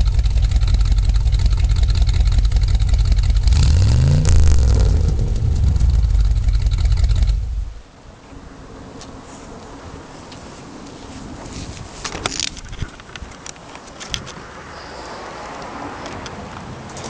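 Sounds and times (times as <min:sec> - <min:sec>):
car engine idling and revving: 0:00.0 - 0:08.0.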